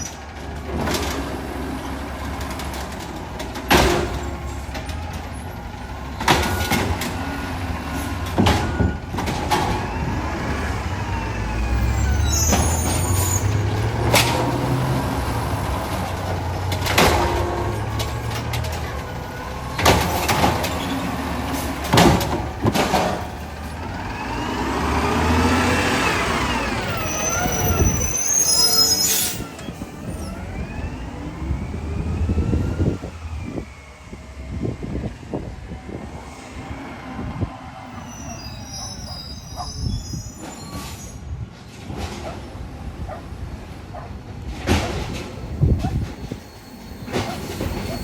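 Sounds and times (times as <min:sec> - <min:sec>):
garbage truck engine running: 0:00.0 - 0:36.0.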